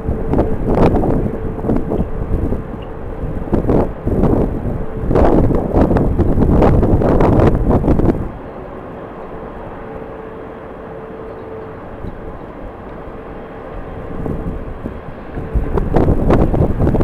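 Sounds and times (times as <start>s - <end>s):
distant jet engines humming: 0.0s - 17.0s.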